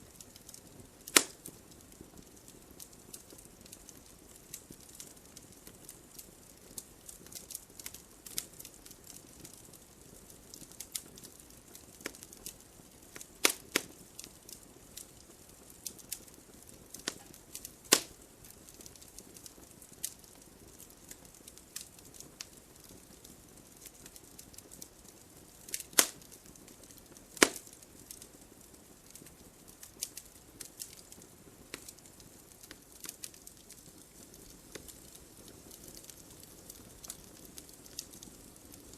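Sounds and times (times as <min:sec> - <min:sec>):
wood fire crackling: 0:00.0 - 0:38.9
loud sharp pops: 0:01.1 - 0:01.4, 0:17.9 - 0:18.2, 0:25.9 - 0:26.2, 0:27.4 - 0:27.7.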